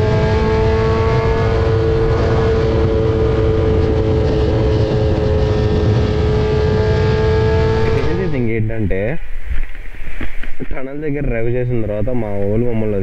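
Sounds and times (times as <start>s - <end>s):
motorcycle engine running: 0.0s - 8.6s
rushing wind: 0.0s - 13.0s.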